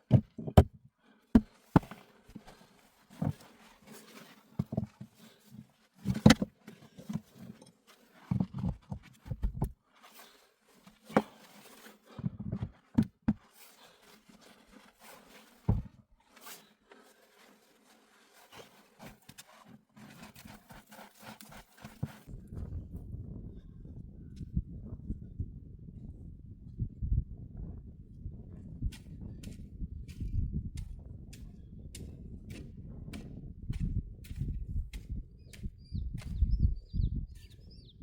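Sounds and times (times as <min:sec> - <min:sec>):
quiet rustling: 0:01.4 - 0:22.4
thuds and crunches: 0:15.6 - 0:16.0.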